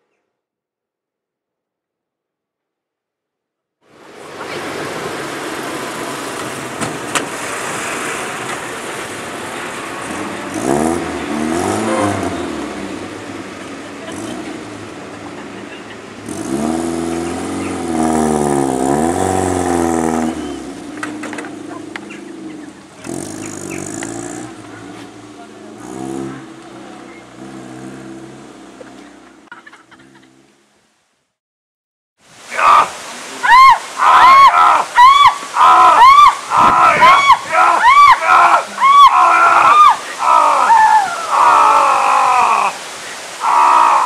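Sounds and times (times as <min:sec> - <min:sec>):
car engine revving: 0:04.7 - 0:29.5.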